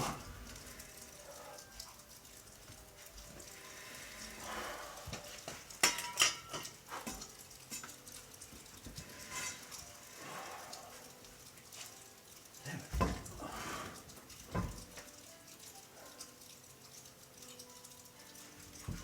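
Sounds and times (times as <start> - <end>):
fuel burning with crackling hiss: 0.0 - 19.0.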